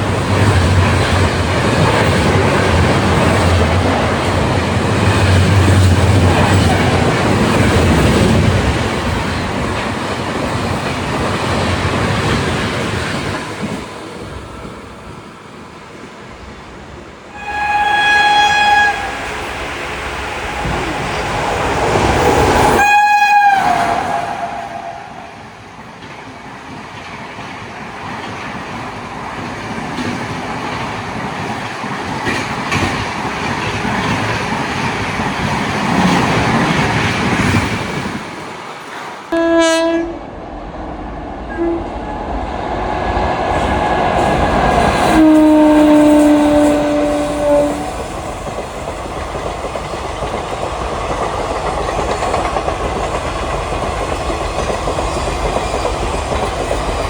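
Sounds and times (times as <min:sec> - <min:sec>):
train rumbling past: 0:00.0 - 0:57.0
train horn blasts: 0:17.3 - 0:19.5, 0:22.7 - 0:25.4, 0:39.3 - 0:40.3, 0:41.5 - 0:42.0, 0:45.0 - 0:48.0
train wheel clatter: 0:17.7 - 0:39.3, 0:43.4 - 0:57.0.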